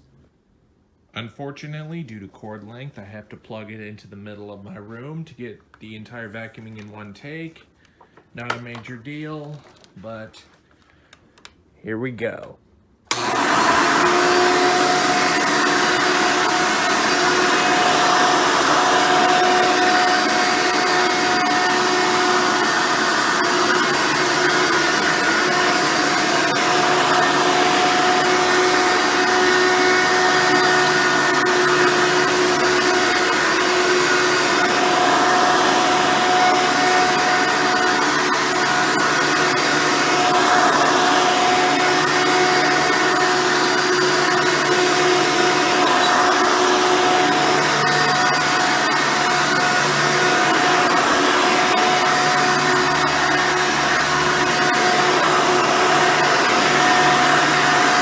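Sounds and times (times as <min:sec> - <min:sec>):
vacuum cleaner whining: 0:13.1 - 0:58.0.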